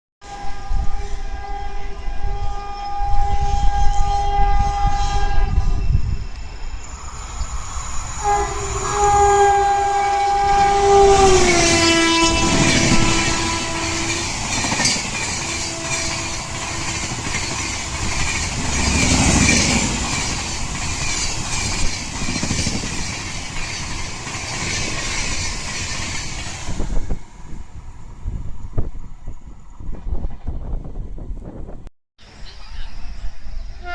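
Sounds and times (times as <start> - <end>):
train horn: 0.2 - 6.0, 8.1 - 20.3
train wheels clattering: 10.2 - 27.1.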